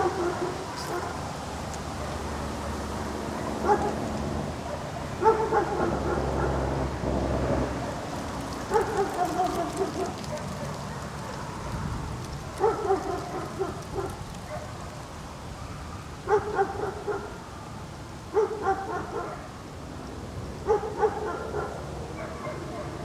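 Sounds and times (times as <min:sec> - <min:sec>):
dog barking: 0:00.0 - 0:01.2, 0:03.6 - 0:04.0, 0:04.6 - 0:06.6, 0:08.7 - 0:11.1, 0:12.6 - 0:14.8, 0:16.3 - 0:17.4, 0:18.3 - 0:19.5, 0:20.6 - 0:23.0.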